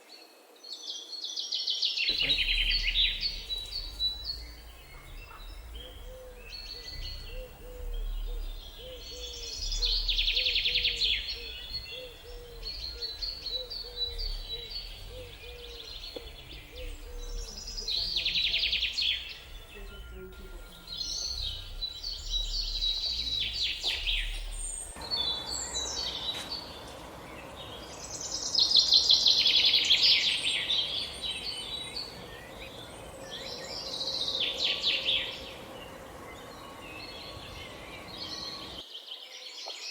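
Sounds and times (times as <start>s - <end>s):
birds trilling song: 0.0s - 39.9s
low repeating bird call: 2.1s - 38.8s
soft high bird chirps: 2.1s - 38.8s
steady rushing noise: 24.7s - 38.8s.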